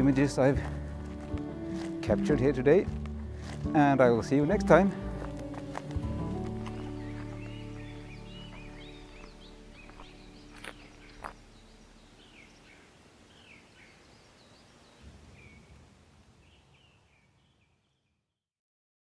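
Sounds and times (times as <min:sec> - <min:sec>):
held music chord: 0:00.0 - 0:12.9
small birds chirping: 0:00.0 - 0:15.8.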